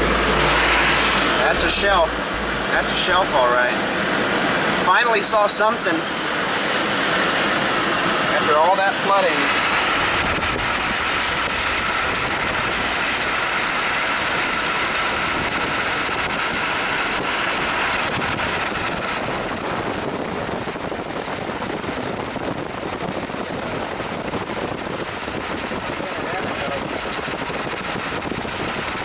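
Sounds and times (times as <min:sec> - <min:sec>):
car road noise and engine: 0:00.0 - 0:04.4
whine: 0:00.0 - 0:04.9.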